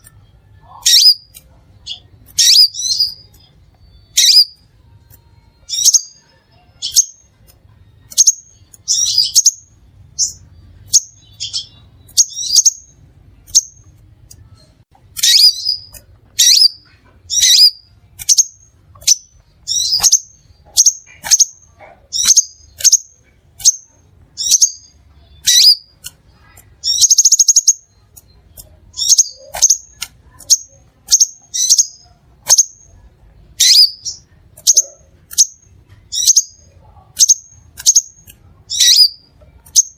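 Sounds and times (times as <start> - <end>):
bird chattering trill: 0.0 - 4.6, 8.1 - 13.9, 15.2 - 33.0, 33.6 - 39.9
bird chirping: 0.0 - 39.9.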